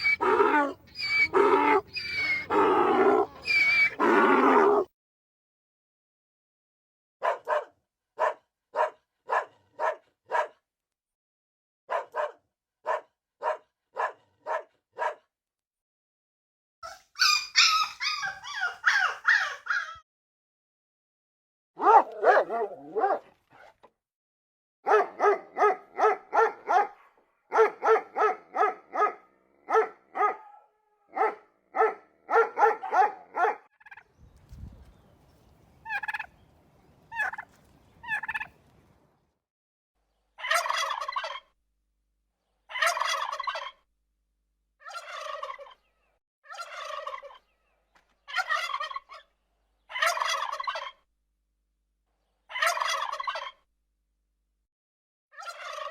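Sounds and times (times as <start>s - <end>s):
turkeys gobbling: 0.0s - 4.7s, 35.8s - 36.4s, 37.1s - 38.6s, 40.4s - 41.4s, 42.7s - 43.8s, 44.8s - 45.8s, 46.6s - 47.4s, 48.3s - 49.2s, 49.9s - 51.0s, 52.5s - 53.6s, 55.4s - 55.9s.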